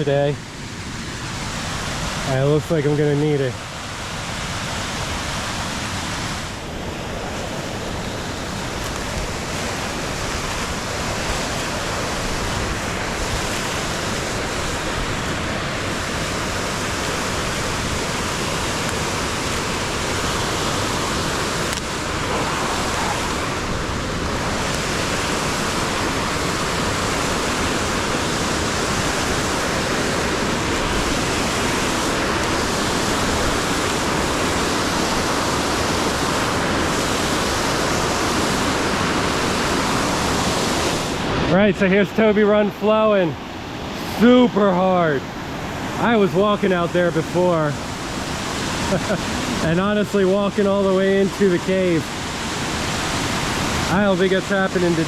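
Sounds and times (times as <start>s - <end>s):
creek and waterfall rushing: 0.0s - 55.0s.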